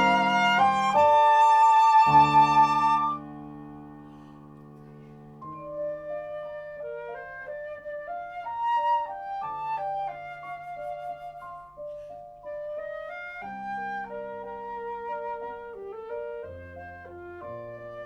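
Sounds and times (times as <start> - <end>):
flute melody: 0.0 - 4.3, 5.4 - 18.0
recorded accompaniment: 0.0 - 18.0.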